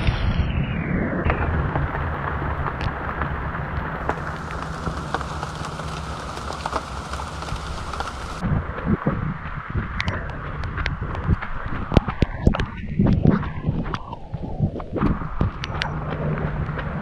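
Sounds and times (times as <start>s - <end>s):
low rain rumble: 1.2s - 12.0s
rain drops tapping: 1.3s - 8.4s.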